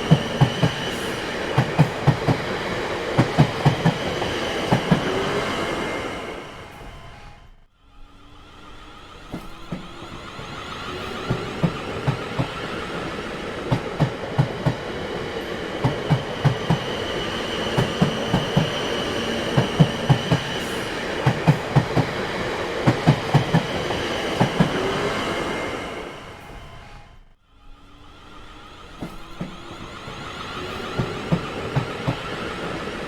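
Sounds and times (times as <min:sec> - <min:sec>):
train wheels clacking over rail joints: 0:00.0 - 0:05.2, 0:09.3 - 0:24.9, 0:29.0 - 0:33.0
train rumble: 0:00.0 - 0:33.0.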